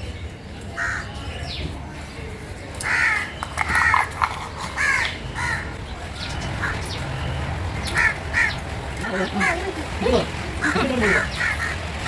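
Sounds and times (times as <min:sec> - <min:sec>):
crows cawing: 0:02.8 - 0:04.0, 0:07.9 - 0:08.6, 0:10.6 - 0:11.9.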